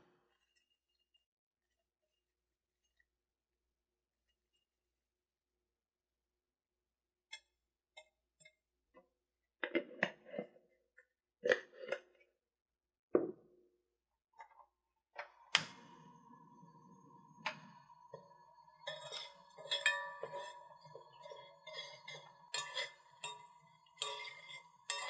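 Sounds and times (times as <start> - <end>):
kitchen vessel struck and ringing: 18.2 - 25.0.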